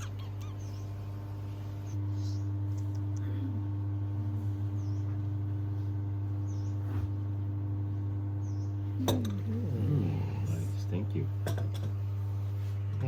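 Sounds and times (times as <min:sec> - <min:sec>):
bird chirping: 0:00.0 - 0:01.1, 0:08.4 - 0:08.8
low hum: 0:00.0 - 0:13.0.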